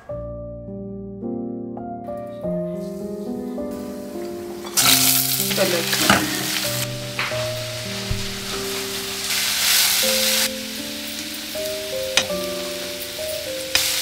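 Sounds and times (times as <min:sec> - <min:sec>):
background music with held notes: 0:00.0 - 0:14.0
vegetables sizzling in hot oil: 0:04.6 - 0:14.0.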